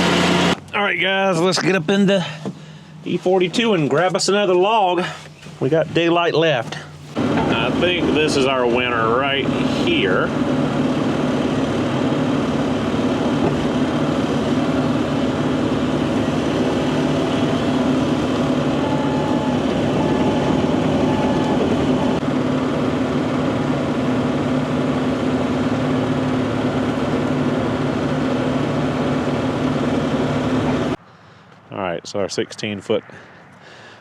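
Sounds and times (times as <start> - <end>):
excavator diesel engine running: 6.9 - 31.0.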